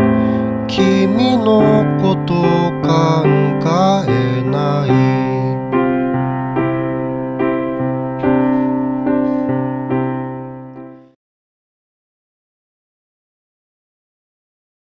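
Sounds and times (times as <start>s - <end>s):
piano-like keyboard chords: 0.0s - 11.2s.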